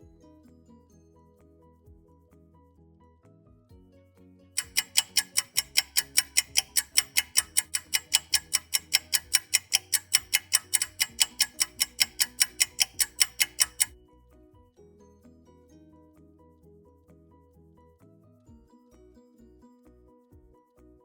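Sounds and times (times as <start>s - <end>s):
quiet background music: 0.0s - 21.0s
fast sharp ticking: 4.6s - 13.9s.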